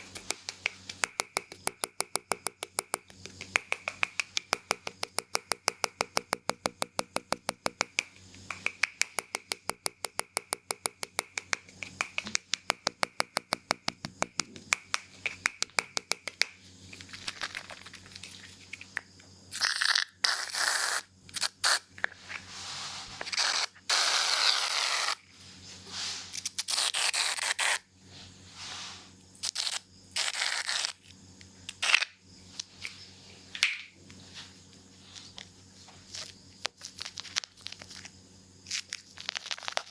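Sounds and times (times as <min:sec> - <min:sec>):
scissors snipping: 0:00.0 - 0:18.2
clicks and rustles: 0:00.0 - 0:19.3
short hissing bursts: 0:28.4 - 0:29.2.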